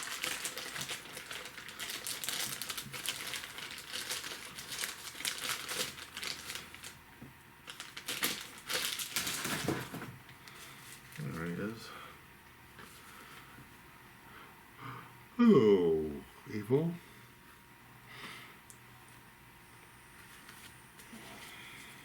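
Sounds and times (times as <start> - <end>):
plastic packaging crinkling: 0.0 - 7.0, 7.6 - 11.4.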